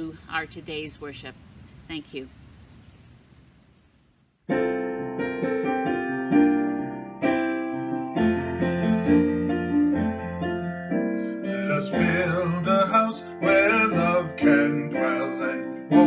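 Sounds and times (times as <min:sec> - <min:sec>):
piano playing hymn chords: 0:04.5 - 0:16.0.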